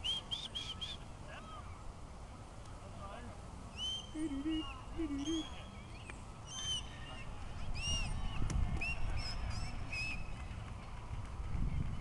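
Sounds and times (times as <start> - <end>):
birds chirping: 0.0 - 1.9, 3.7 - 10.7
low outdoor rumble: 0.0 - 12.0.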